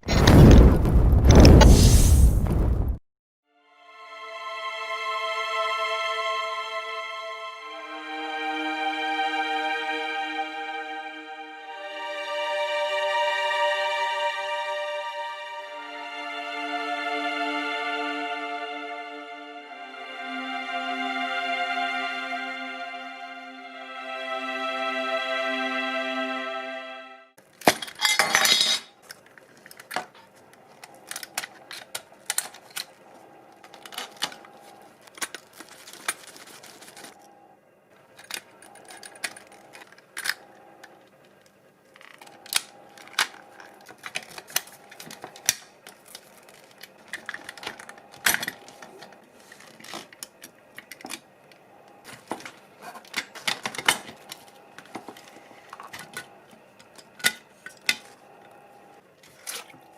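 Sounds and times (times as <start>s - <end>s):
small metal parts clinking: 27.6s - 30.0s.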